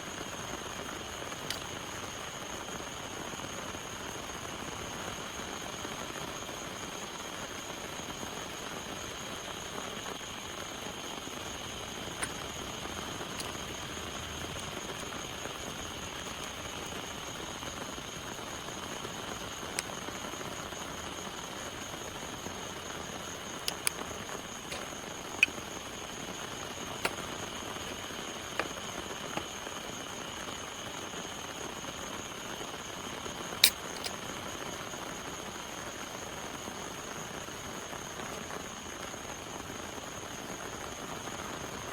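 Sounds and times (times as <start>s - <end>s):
steady rain falling: 0.0s - 33.6s
sharp clicks: 1.5s - 1.7s, 23.6s - 25.7s, 33.6s - 34.1s.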